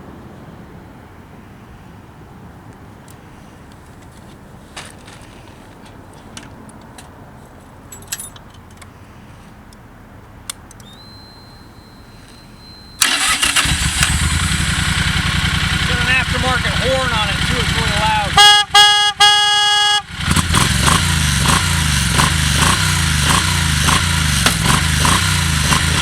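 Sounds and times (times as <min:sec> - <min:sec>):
motorcycle engine starting and idling: 0:12.2 - 0:19.0, 0:20.0 - 0:26.0.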